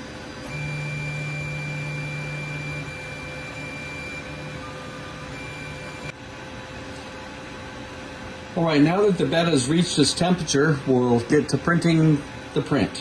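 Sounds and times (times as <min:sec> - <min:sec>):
printer stepper motors whining: 0:00.1 - 0:06.2.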